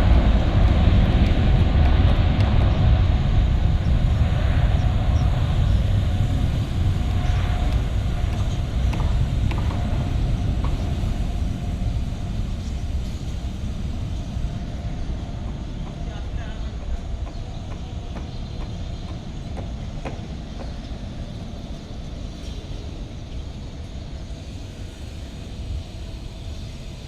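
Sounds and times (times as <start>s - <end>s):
jet engines rumbling: 0.0s - 27.0s.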